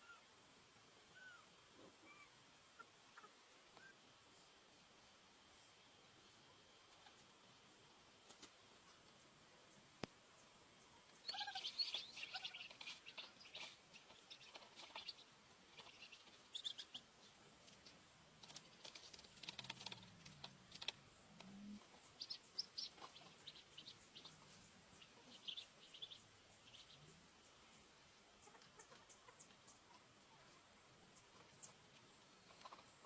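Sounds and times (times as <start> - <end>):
small birds chirping: 8.3 - 33.0.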